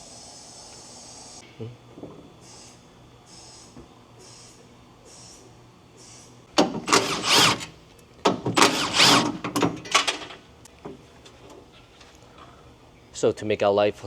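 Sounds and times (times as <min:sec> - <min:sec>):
power tool running: 0:06.6 - 0:10.2.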